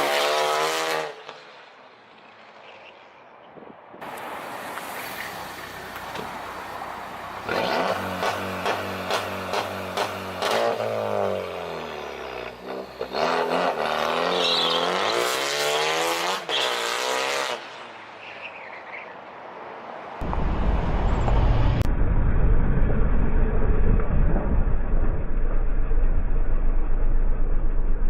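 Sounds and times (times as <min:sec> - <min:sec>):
car engine revving: 0:05.6 - 0:17.7
deep exhaust rumble: 0:20.2 - 0:28.0.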